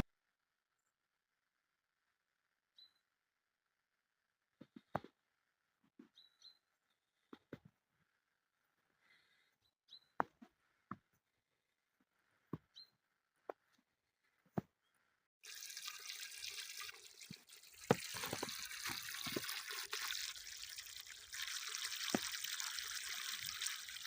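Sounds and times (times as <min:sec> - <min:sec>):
water trickling and dripping: 0:15.4 - 0:24.0.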